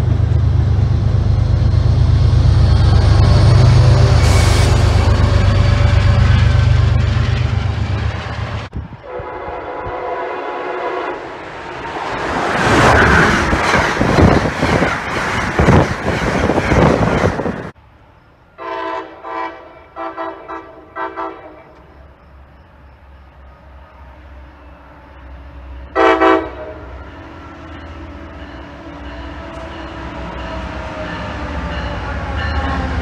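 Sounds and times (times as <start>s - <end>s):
train passing at speed: 0.0s - 33.0s
train air horn: 9.0s - 11.3s, 18.6s - 21.8s, 25.9s - 27.2s.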